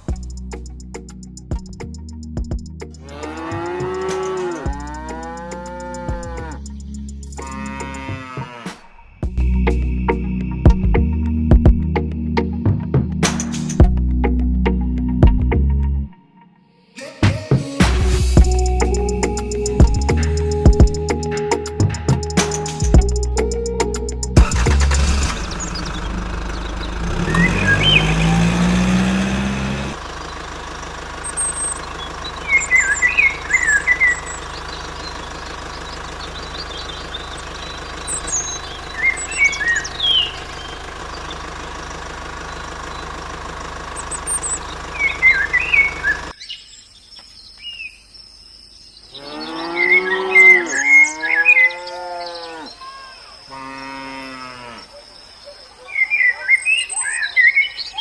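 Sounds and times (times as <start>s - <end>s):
birds chirping: 0.0s - 13.8s, 17.3s - 58.0s
engine revving: 2.8s - 11.1s, 17.8s - 46.4s
cow mooing: 3.0s - 6.6s, 7.4s - 8.9s, 49.1s - 52.9s, 53.5s - 54.9s.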